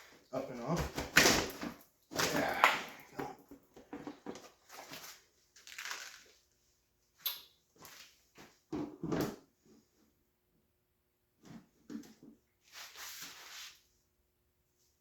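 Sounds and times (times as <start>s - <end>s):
scrapes and rustles: 11.4s - 13.9s.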